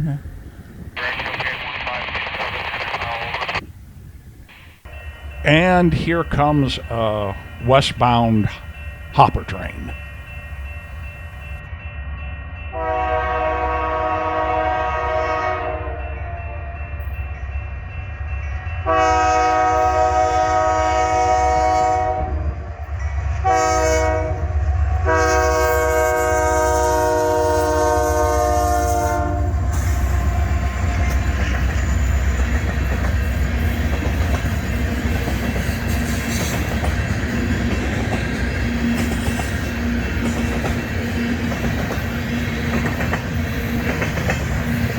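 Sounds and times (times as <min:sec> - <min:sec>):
locomotive horn: 0:12.7 - 0:16.0, 0:18.9 - 0:22.6, 0:23.4 - 0:30.7
train wheels clattering on rails: 0:29.7 - 0:44.9.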